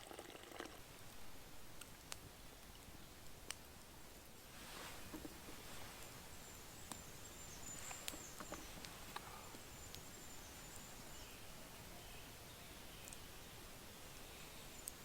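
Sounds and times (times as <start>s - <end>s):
low hiss: 0.0s - 15.0s
faint high-pitched chirps: 6.0s - 15.0s.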